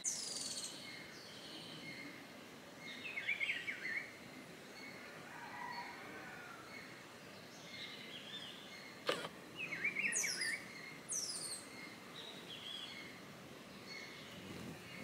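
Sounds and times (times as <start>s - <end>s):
birds chirping: 0.0s - 15.0s
high falling bird calls: 2.8s - 15.0s.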